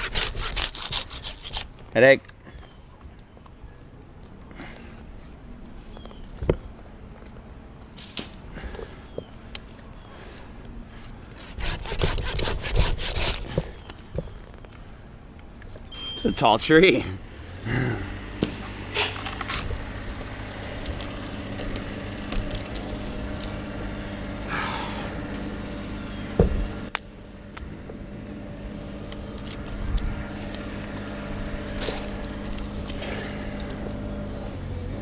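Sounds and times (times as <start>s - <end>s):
engine idling: 17.2s - 35.0s.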